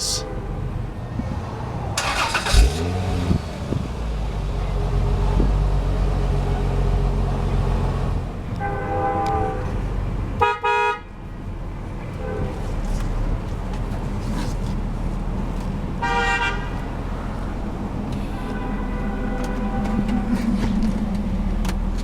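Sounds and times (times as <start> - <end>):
car engine idling: 0.0 - 0.3, 2.0 - 8.1, 13.8 - 22.0
car horn tooting: 8.6 - 9.8, 10.4 - 11.1, 16.0 - 16.9, 18.2 - 20.7.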